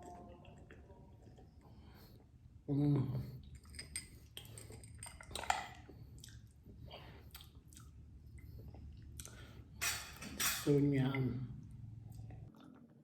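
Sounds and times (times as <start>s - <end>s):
person chewing: 4.2s - 9.6s
wet mouth smacks and clicks: 7.3s - 7.9s.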